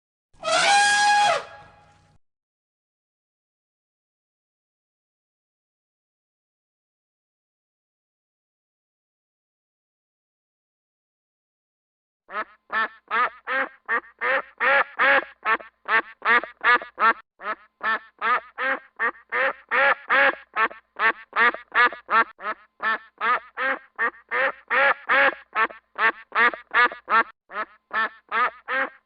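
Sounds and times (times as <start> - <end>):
duck quacking: 12.3 - 29.0.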